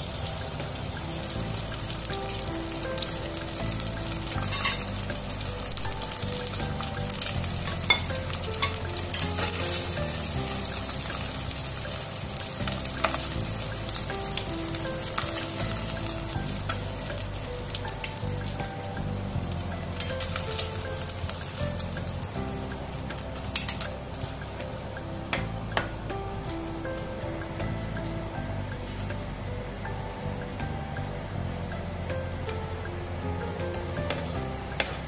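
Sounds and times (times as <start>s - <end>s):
chicken sizzling in hot oil: 0.0s - 35.0s
metal tongs clicking against pot: 7.2s - 9.8s.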